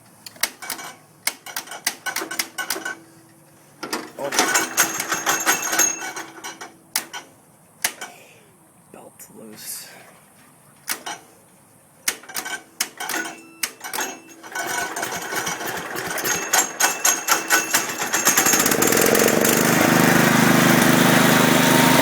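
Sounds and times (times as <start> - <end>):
single-cylinder engine running: 14.5 - 22.0.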